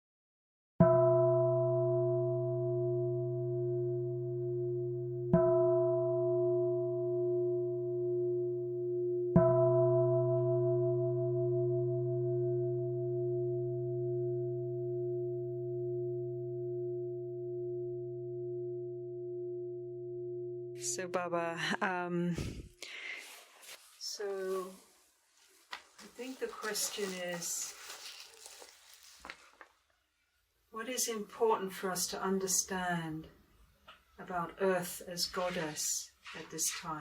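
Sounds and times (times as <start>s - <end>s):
meditation bell ringing: 0.9s - 21.0s.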